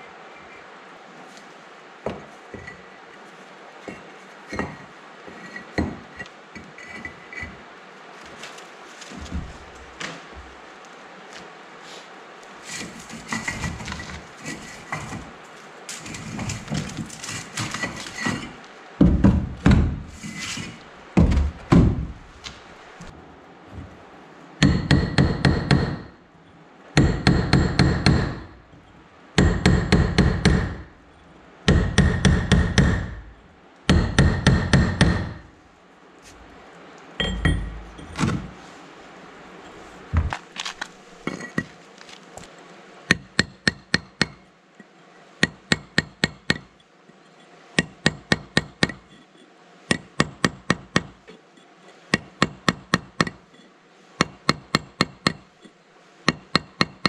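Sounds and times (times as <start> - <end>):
hammer blows: 37.2 - 38.6.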